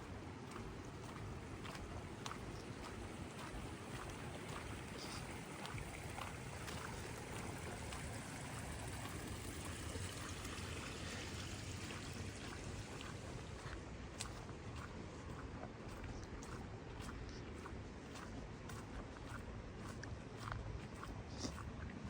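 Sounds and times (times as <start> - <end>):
raindrops ticking: 0.4 - 15.0.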